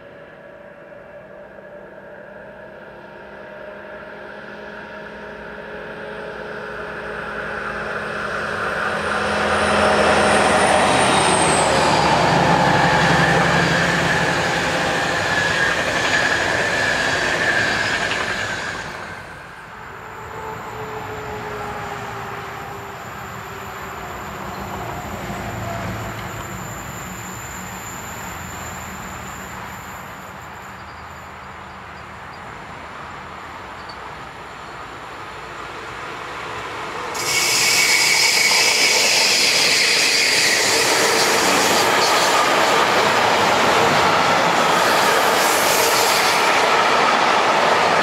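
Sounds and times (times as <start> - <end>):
diesel locomotive engine: 0.0 - 48.0
distant train: 0.0 - 48.0
train coaches rumbling past: 0.0 - 48.0
train wheel squeal: 5.0 - 32.5, 37.1 - 48.0
insects chirping: 22.8 - 35.8.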